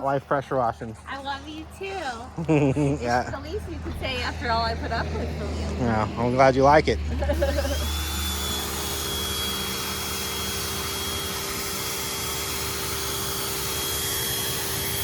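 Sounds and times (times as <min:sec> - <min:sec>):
pressure washer spraying water: 0:07.2 - 0:15.0.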